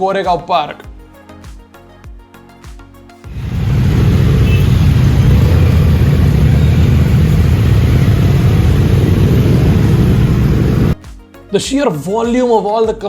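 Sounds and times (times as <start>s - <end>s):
group of motorcycles riding: 3.3s - 11.0s.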